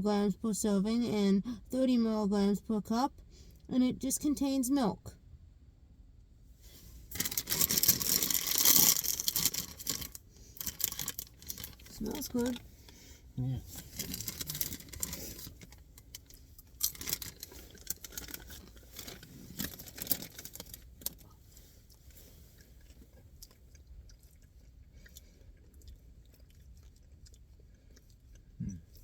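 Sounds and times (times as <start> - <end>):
chewing crunchy popcorn: 7.1 - 13.0, 13.7 - 29.0.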